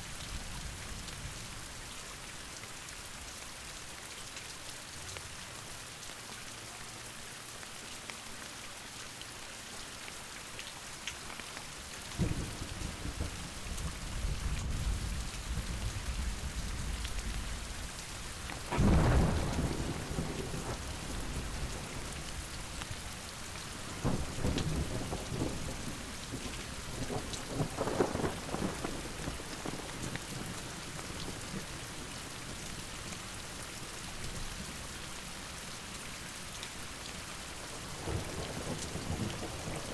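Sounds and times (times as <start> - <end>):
heavy rain falling: 0.0 - 39.9
thunder rumbling: 18.5 - 22.5, 23.9 - 29.8
loud thunderclap: 18.7 - 21.8.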